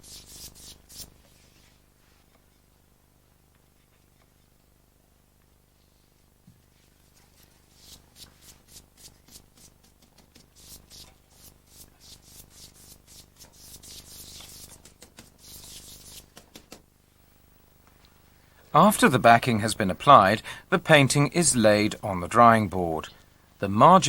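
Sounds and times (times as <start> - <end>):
brush swishing over paper: 6.7 - 16.4.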